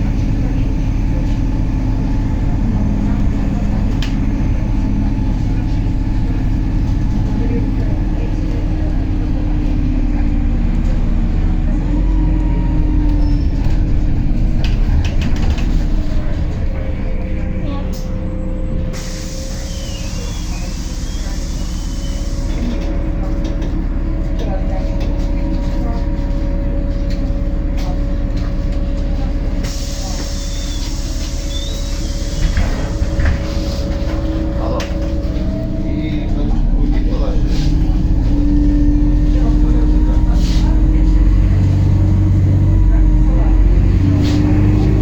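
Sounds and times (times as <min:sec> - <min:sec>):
bus engine droning: 0:00.0 - 0:45.0
hiss: 0:19.0 - 0:22.5.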